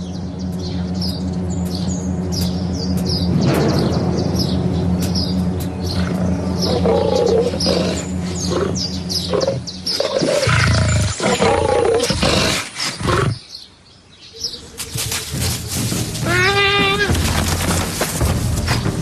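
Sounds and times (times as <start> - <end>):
birds chirping: 0.0 - 19.0
big cat growling and snarling: 5.9 - 13.5.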